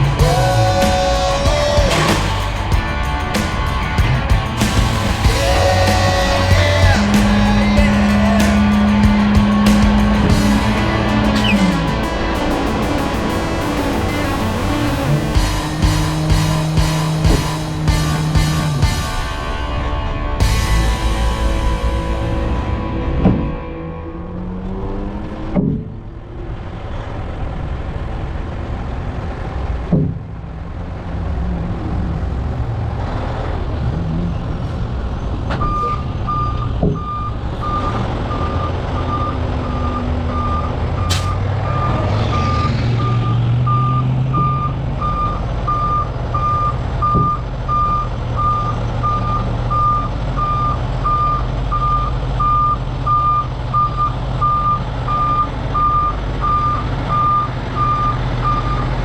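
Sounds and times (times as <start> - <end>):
diesel truck engine running: 0.0 - 25.1, 26.0 - 59.0
reverse alarm beeping: 35.6 - 59.0.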